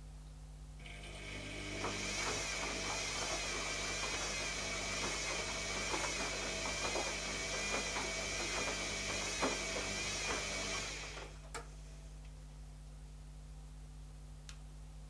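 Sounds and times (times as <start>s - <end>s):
washing machine motor whine: 0.8s - 12.2s.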